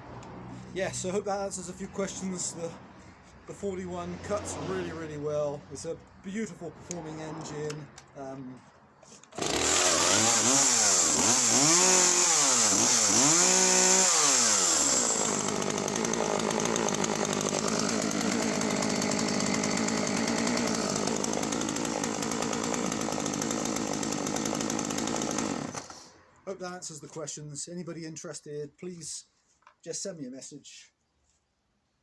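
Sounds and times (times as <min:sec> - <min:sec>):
chainsaw revving and cutting wood: 0:09.3 - 0:26.2.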